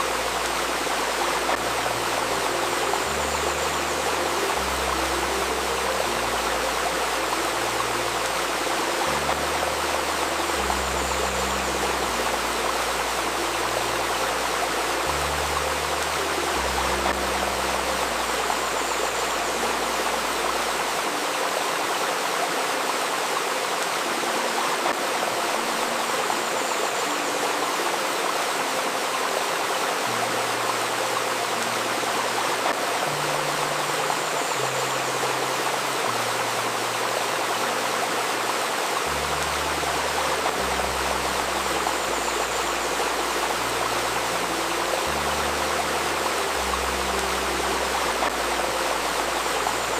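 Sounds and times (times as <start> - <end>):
babbling river water: 0.0 - 49.9
low sustained notes: 0.0 - 49.9.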